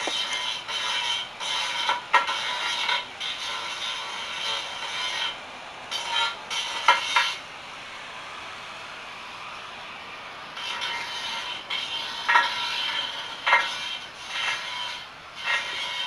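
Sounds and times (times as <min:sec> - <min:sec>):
metal scraping and clattering: 0:00.0 - 0:07.4, 0:10.6 - 0:16.0
steady hiss: 0:00.0 - 0:16.0.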